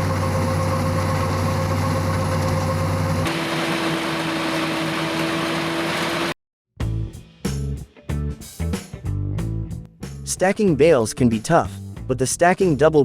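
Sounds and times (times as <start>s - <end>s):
heavy machinery humming: 0.0s - 6.4s.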